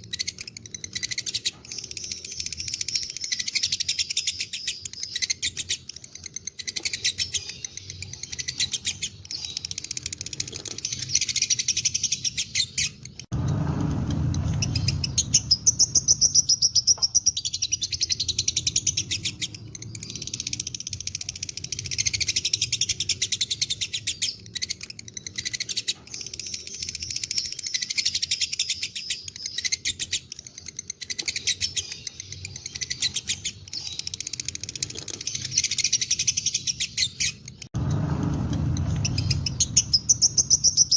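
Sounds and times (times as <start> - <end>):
lovebirds chattering trills: 0.0 - 13.3, 14.1 - 37.7
low rumble: 13.3 - 16.6, 37.8 - 40.6.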